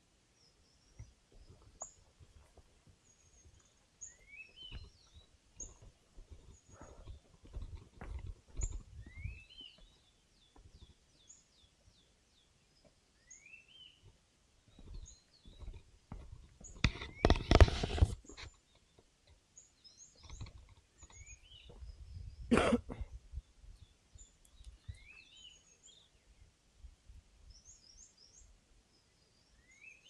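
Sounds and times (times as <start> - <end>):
forest birds calling: 0.0 - 26.6, 27.4 - 30.0
rising whistled bird calls: 9.0 - 9.8.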